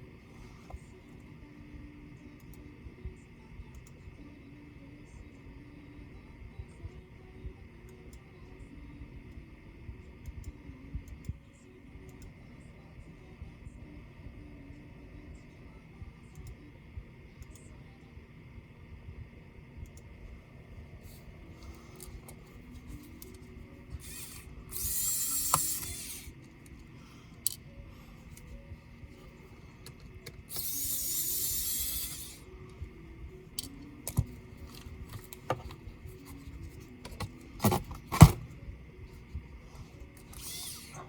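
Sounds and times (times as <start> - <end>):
electric screwdriver whirring: 22.0 - 26.5, 29.8 - 32.5, 40.1 - 41.0.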